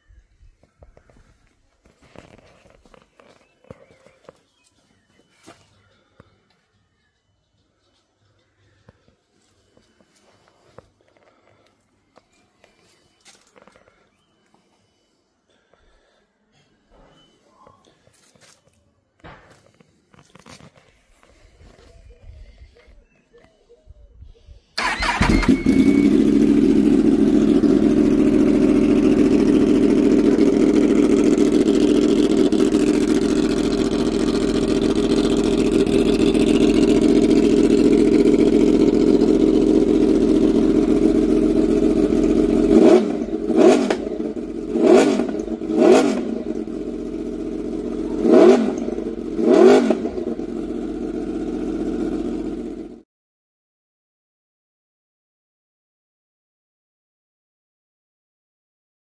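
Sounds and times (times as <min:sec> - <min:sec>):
motorcycle engine idling: 0:24.8 - 0:53.0
motorcycle engine revving: 0:24.8 - 0:53.0.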